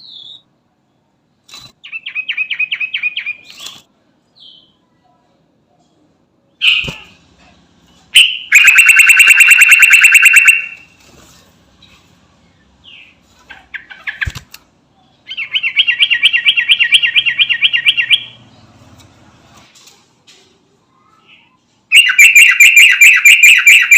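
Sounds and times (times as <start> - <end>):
bird singing fast trills: 15.3 - 18.5.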